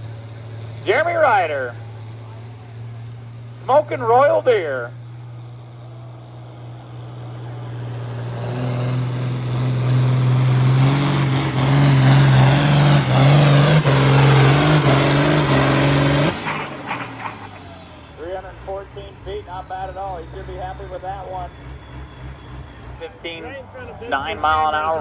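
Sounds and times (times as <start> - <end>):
falling engine whine: 0.0 - 25.0
tractor diesel engine under load: 0.0 - 25.0.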